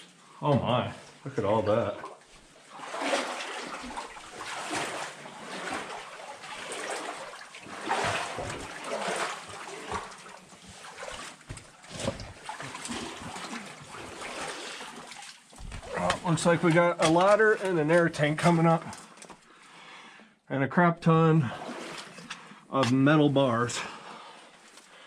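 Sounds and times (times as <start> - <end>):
water splashing from wading: 1.8 - 18.0, 21.5 - 22.5.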